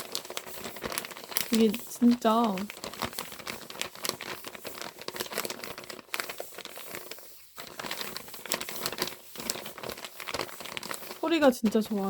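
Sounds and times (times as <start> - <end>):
plastic pouch crinkling: 0.0 - 12.0.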